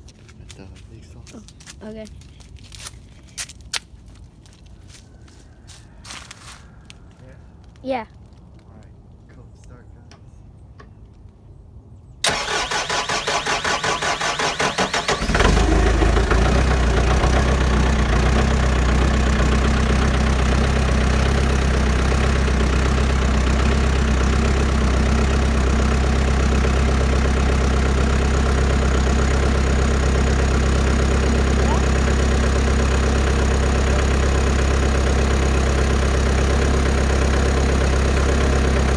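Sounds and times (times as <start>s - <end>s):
diesel engine idling: 12.2s - 38.9s
starter motor cranking: 12.2s - 38.9s.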